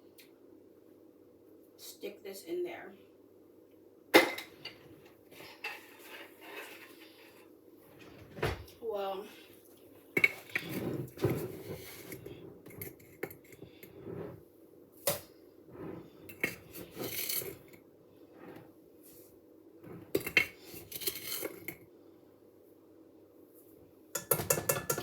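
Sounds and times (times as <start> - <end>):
dishes and utensils clinking: 4.2 - 7.2, 10.2 - 13.6, 24.2 - 25.0
scraping: 5.3 - 8.4, 10.2 - 14.4.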